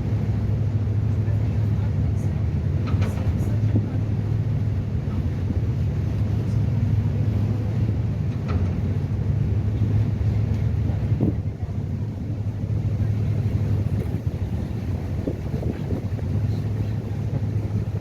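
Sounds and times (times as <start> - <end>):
ferry engines droning: 0.0 - 18.0.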